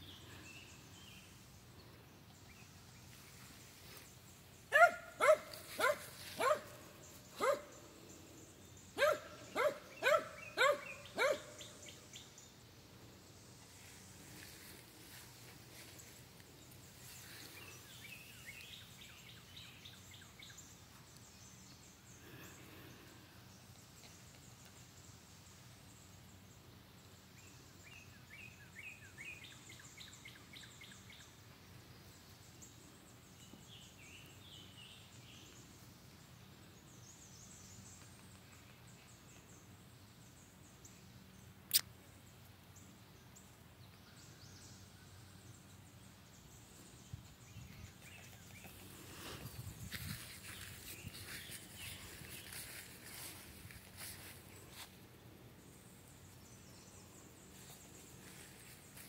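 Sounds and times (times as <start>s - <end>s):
bird chirping: 0.0s - 12.6s
sharp click: 41.7s - 41.9s.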